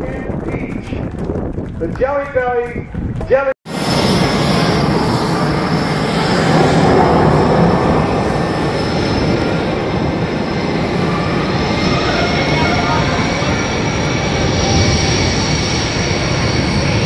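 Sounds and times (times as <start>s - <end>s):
aircraft engine flying by: 3.7s - 17.0s.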